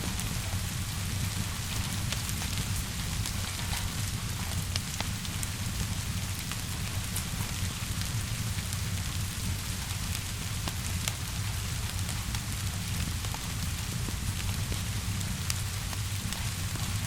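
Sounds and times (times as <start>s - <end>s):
fire popping and crackling: 0.0s - 17.0s
rain hissing: 0.0s - 17.0s.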